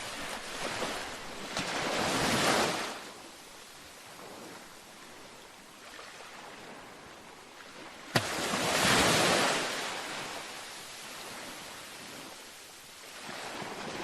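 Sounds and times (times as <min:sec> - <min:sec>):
ocean waves washing: 0:00.0 - 0:14.0.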